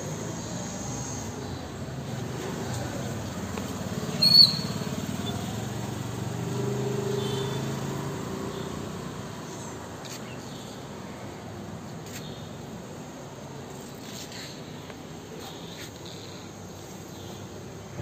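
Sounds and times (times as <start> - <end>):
bird chirps: 4.1 - 5.5.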